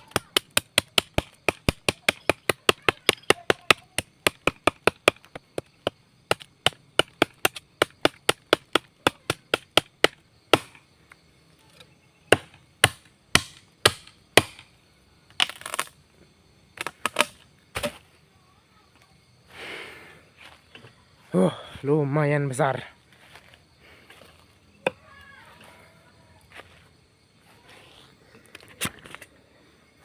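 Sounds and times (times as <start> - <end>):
machete chopping wood: 0.0 - 10.8, 12.3 - 14.7, 16.8 - 18.0
wood splintering: 15.4 - 15.9.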